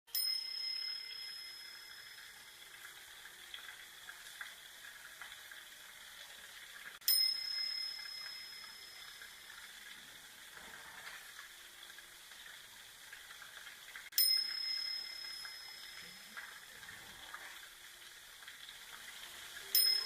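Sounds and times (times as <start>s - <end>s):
small bell ringing: 0.1s - 2.6s, 7.0s - 9.5s, 14.2s - 16.5s, 19.7s - 20.0s
rushing water: 0.2s - 20.0s.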